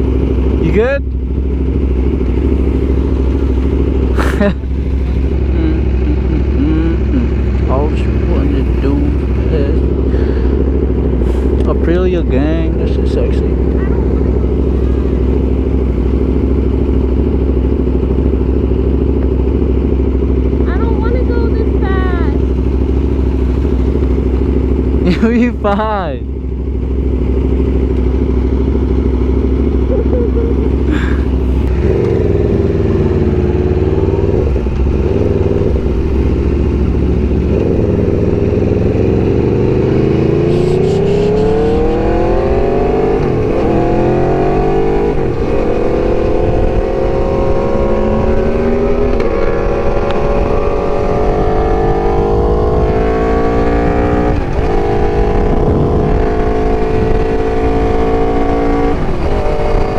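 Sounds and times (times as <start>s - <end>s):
motorcycle engine accelerating: 0.0s - 59.9s
wind rumble on microphone: 31.6s - 59.9s.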